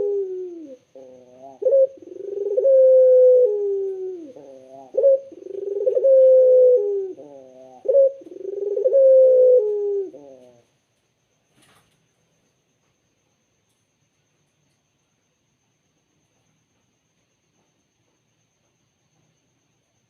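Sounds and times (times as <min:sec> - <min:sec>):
dove cooing: 0:00.0 - 0:10.7.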